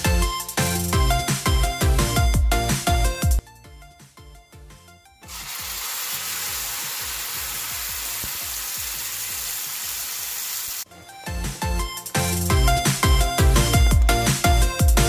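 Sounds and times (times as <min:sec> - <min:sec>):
upbeat electronic music: 0:00.0 - 0:05.7, 0:10.8 - 0:15.0
salsa sizzling in hot oil: 0:05.3 - 0:10.9.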